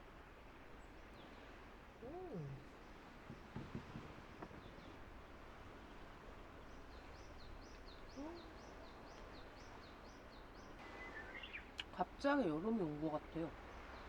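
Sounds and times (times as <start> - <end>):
outdoor background noise: 0.0 - 14.0
bird singing: 6.9 - 11.8.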